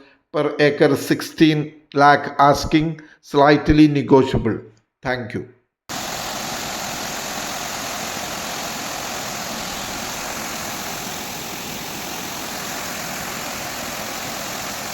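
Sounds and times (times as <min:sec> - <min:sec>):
steady rushing noise: 0:05.9 - 0:14.9.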